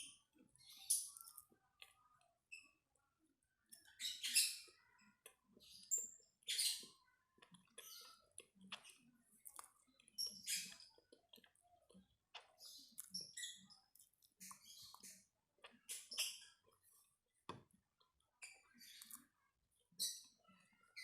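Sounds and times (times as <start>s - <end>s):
person chewing crunchy food: 6.8s - 18.2s.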